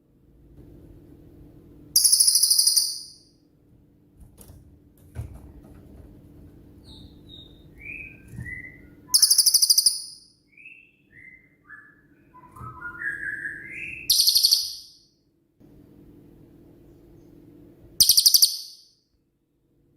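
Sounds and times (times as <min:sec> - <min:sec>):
songbird downslurred chirps: 0:06.8 - 0:15.0.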